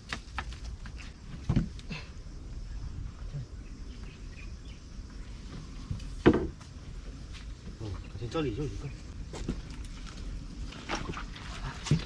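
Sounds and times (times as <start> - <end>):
thump: 6.2 - 6.6.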